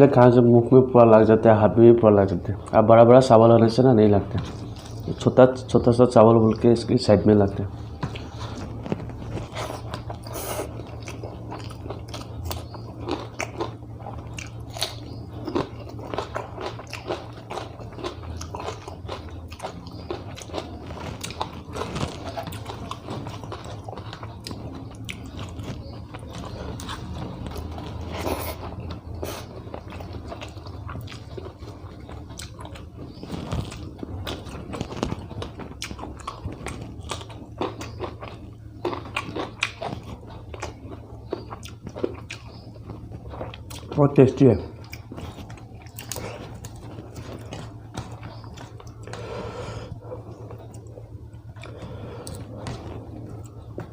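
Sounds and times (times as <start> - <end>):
low steady hum: 0.0 - 53.9
person chewing food: 2.6 - 5.4, 7.6 - 53.9.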